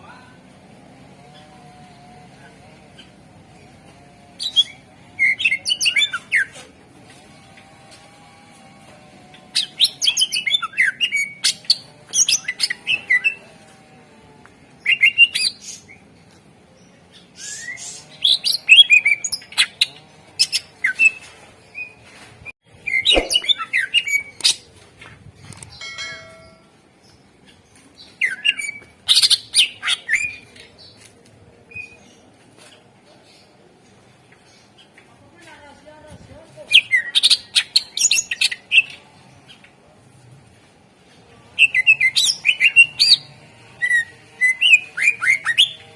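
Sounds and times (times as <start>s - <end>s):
bird chirping and whistling: 22.9s - 24.3s.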